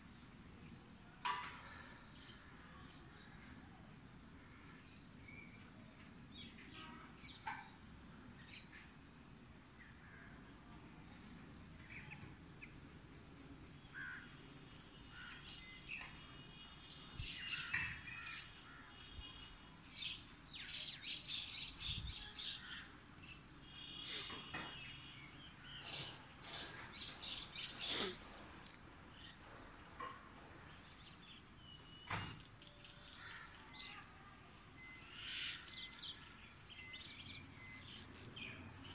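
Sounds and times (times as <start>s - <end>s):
birds calling and chirping: 11.1s - 38.9s.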